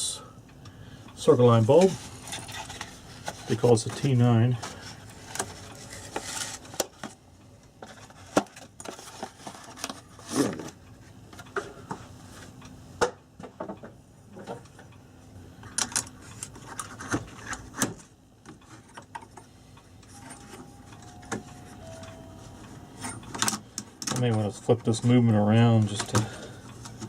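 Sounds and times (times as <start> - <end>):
hands handling clock parts: 1.6 - 7.2.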